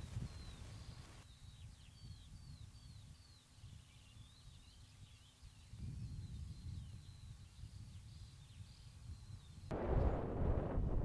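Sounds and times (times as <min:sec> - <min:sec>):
birds chirping and twittering: 0:00.0 - 0:10.2
low gusty rumble: 0:09.7 - 0:11.0.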